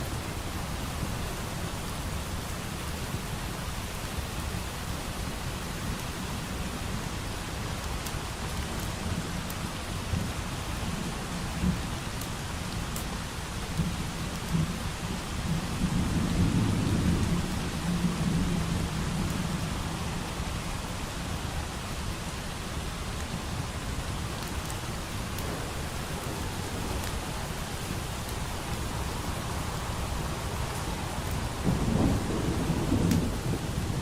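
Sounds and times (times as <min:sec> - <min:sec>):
steady rain: 0:00.0 - 0:34.0
wood fire crackling: 0:05.9 - 0:15.0, 0:22.9 - 0:34.0
distant thunder rolling: 0:25.3 - 0:34.0.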